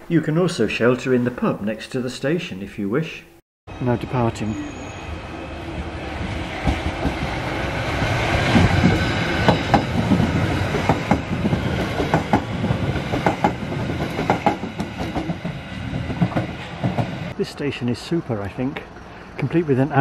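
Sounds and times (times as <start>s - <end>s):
train wheels rumbling on rail: 3.8s - 20.0s
wheels clacking over rail joints: 6.6s - 17.4s.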